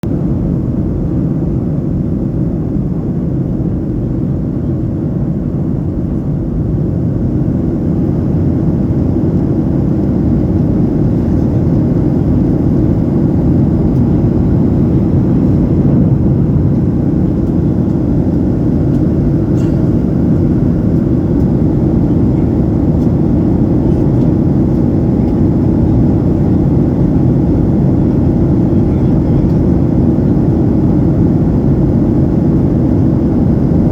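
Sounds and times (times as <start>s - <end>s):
airplane engines rumbling: 0.0s - 33.9s
rushing air: 13.0s - 22.0s.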